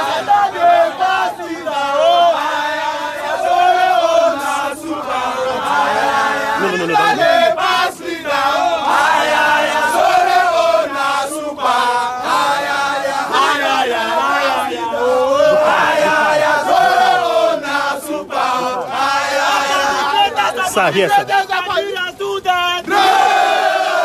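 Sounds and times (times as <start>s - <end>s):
crowd chanting and singing: 0.0s - 24.0s.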